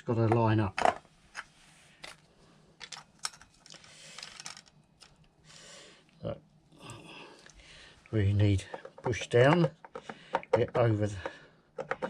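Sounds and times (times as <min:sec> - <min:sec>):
metal parts clicking: 0:02.8 - 0:05.3.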